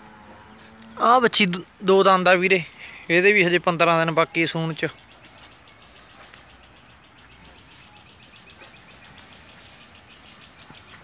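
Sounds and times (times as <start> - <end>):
small birds chirping: 0.4 - 11.0.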